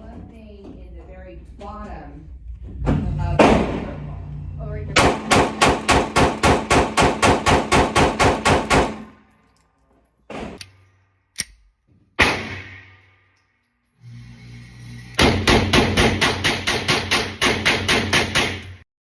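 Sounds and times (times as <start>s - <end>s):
gunshots: 5.0s - 9.2s, 12.2s - 13.0s.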